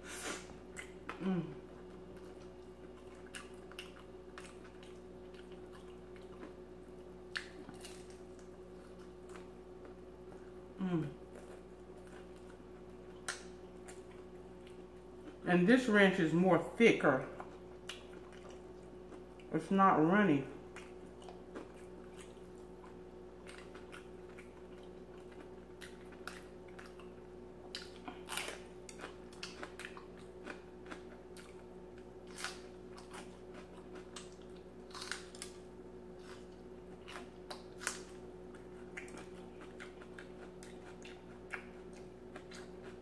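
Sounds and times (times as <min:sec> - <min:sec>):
faint steady hum: 0:00.0 - 0:43.0
crisp crunching of pepper: 0:00.8 - 0:09.9, 0:27.7 - 0:43.0.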